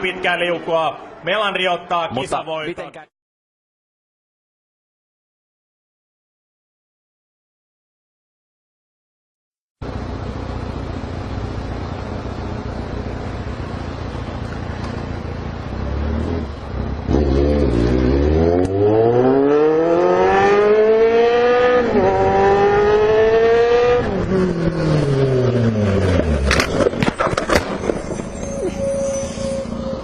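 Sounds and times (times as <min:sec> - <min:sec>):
motorcycle engine revving: 0:09.9 - 0:28.0.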